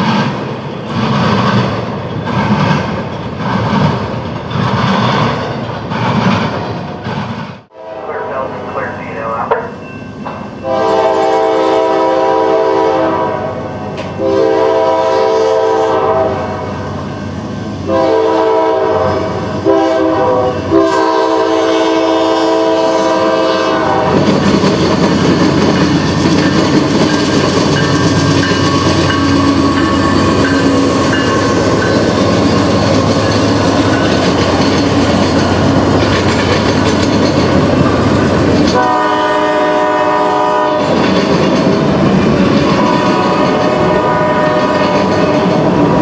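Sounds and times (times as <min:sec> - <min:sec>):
train wheels clacking on track: 0:00.0 - 0:07.6, 0:09.2 - 0:10.6, 0:13.8 - 0:14.2, 0:23.7 - 0:46.0
locomotive air horn: 0:07.7 - 0:09.4, 0:10.6 - 0:16.8, 0:17.9 - 0:24.2, 0:38.7 - 0:41.0, 0:42.8 - 0:45.4.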